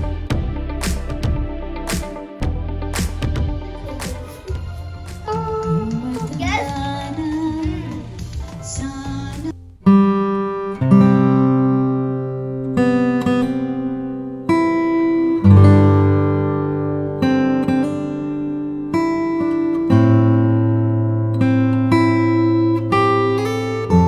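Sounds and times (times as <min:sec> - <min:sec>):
strummed acoustic guitar chords: 0:00.0 - 0:24.0
song with singing: 0:03.6 - 0:09.5.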